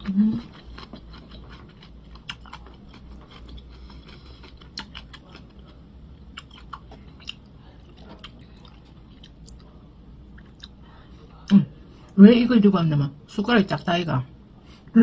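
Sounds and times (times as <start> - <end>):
person chewing food: 0.0 - 11.5.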